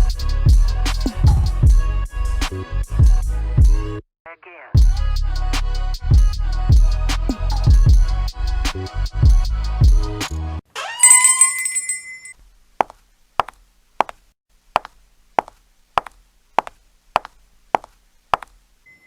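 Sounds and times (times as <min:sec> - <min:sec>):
shimmering chime: 0:11.0 - 0:12.3.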